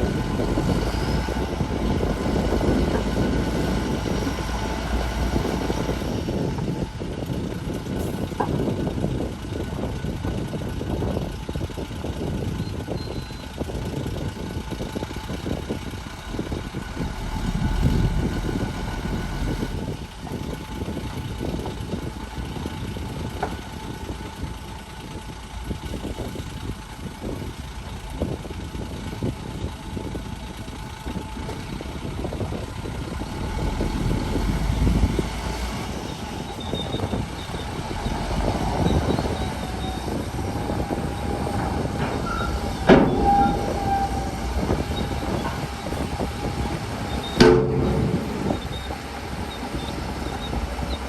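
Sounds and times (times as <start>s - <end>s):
steel tracks grinding and squealing: 0.0s - 8.5s, 12.6s - 25.0s, 27.8s - 51.0s
bulldozer diesel engine under load: 0.0s - 51.0s
sharp metal clanks: 47.4s - 48.7s.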